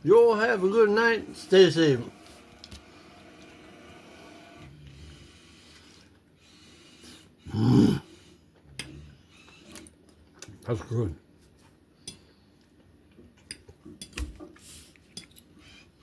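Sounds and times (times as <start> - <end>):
man humming mm of enjoyment: 7.5 - 8.1.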